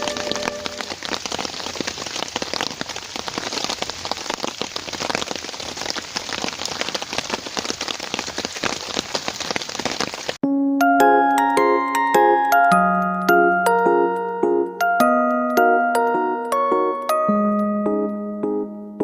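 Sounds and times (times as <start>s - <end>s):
steady rain falling: 0.0s - 10.4s.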